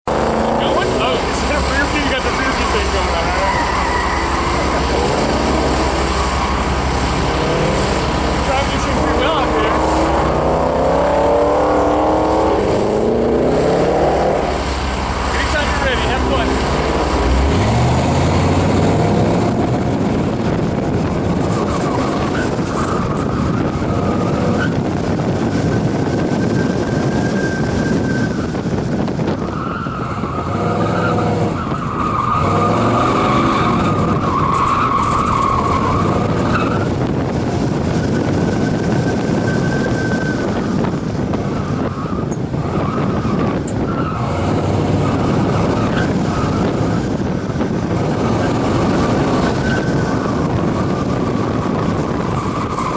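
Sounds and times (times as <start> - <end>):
pickup truck engine accelerating: 0.0 - 52.9
road noise: 0.0 - 52.9
wind noise: 0.0 - 52.9.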